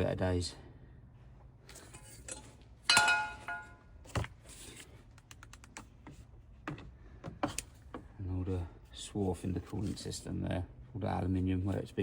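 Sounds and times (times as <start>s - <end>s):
metal part clinking: 1.9s - 3.8s.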